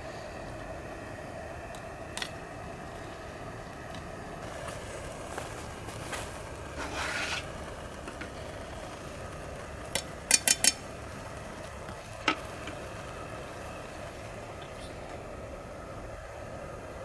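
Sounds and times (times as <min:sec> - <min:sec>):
utensil scraping a pot: 0:05.9 - 0:08.5, 0:09.9 - 0:12.9
utensil clinking against a pot: 0:10.0 - 0:11.0.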